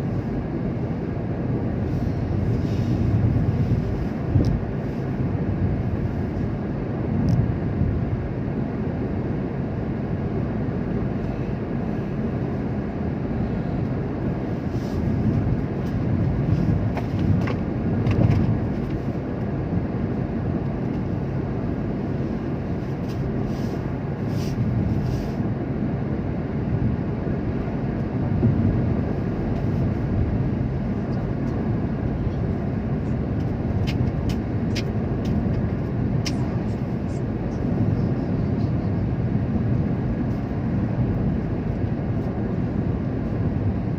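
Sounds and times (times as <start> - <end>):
car driving on road: 0.0 - 43.9.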